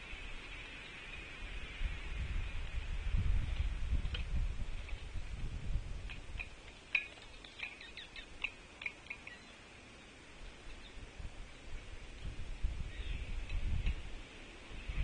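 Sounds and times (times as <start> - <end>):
songbirds chirping: 0.0 - 2.9, 6.0 - 15.0.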